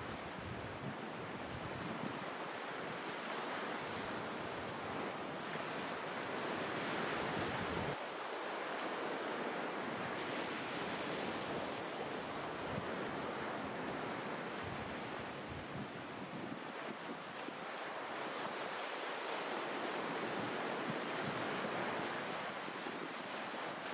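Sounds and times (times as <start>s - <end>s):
wind noise on microphone: 0.0s - 2.3s, 3.2s - 8.0s, 12.6s - 17.3s.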